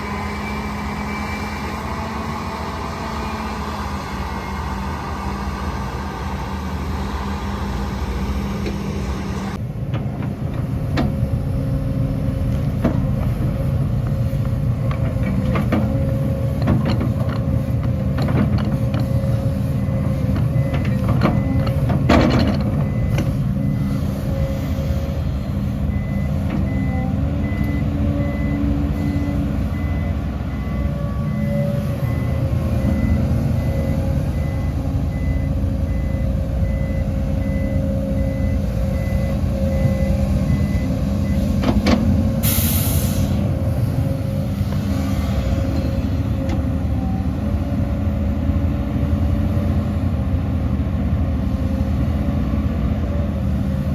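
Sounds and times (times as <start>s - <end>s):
heavy diesel engines running: 0.0s - 53.9s
metal knocks and clanks: 12.5s - 19.2s, 20.3s - 23.4s
reversing alarm beeping: 18.5s - 43.4s.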